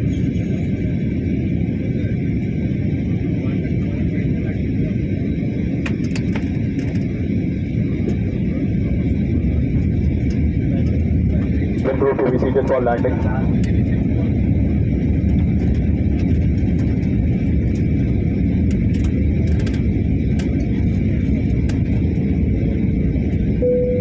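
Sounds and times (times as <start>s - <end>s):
engine and airflow rumble: 0.0s - 24.0s
faint high whine: 23.6s - 24.0s.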